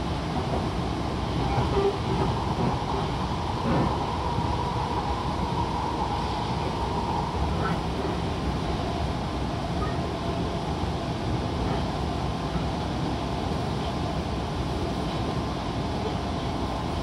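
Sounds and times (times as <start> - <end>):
train running at speed: 0.0 - 17.0.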